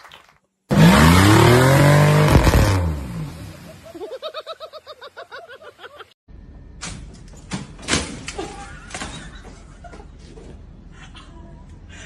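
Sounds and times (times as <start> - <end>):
person laughing: 3.5 - 6.2, 8.3 - 10.2, 10.9 - 12.0.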